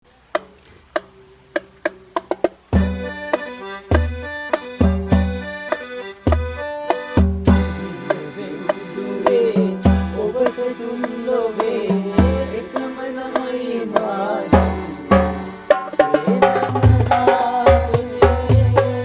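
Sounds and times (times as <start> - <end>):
light percussion ticks: 0.4 - 7.8
calypso band playing: 0.9 - 19.0.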